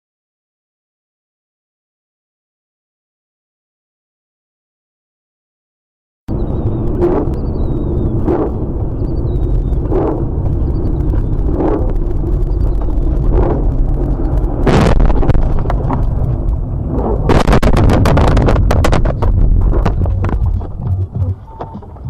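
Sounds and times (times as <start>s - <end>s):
vehicle rumbling: 6.3s - 22.0s
sharp cracking impacts: 9.4s - 21.1s.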